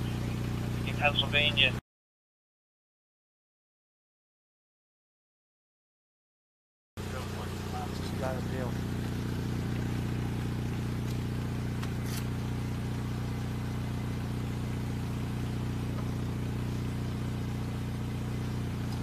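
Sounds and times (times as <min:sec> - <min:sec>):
car engine idling: 0:00.0 - 0:01.8, 0:07.0 - 0:19.0.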